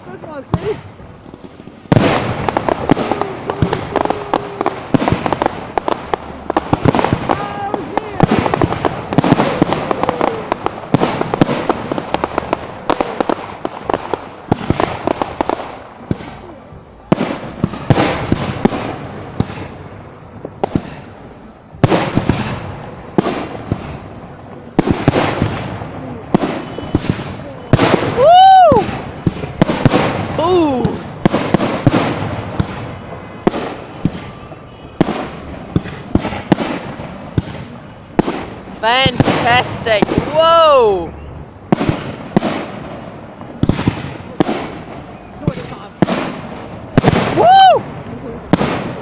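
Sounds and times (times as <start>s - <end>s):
fireworks bangs and crackling: 0.0s - 49.0s.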